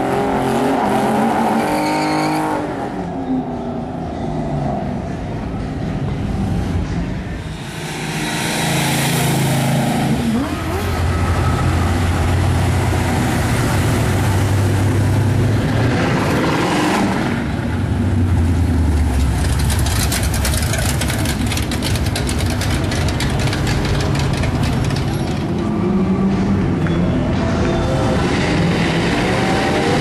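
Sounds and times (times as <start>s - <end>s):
car passing with choppy exhaust: 4.5s - 26.7s.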